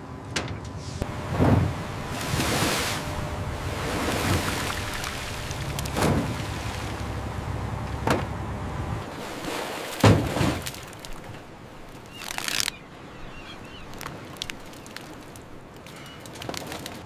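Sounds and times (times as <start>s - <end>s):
low rumble: 0.8s - 9.1s
sharp thuds: 1.1s - 7.0s, 10.0s - 11.4s.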